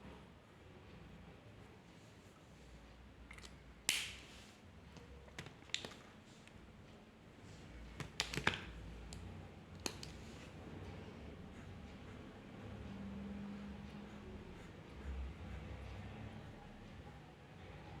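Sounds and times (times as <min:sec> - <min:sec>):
drawing tools clicking on desk: 0:09.8 - 0:10.3.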